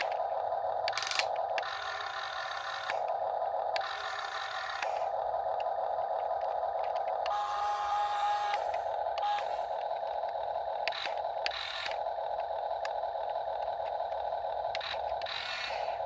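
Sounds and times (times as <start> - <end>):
small electric motors whining: 0.0 - 16.0
clicks and gear clatter: 0.9 - 1.8.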